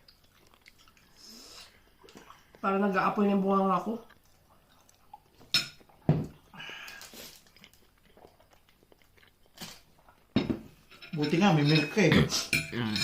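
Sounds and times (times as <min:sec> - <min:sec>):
utensils clicking against dishes: 0:10.9 - 0:13.0.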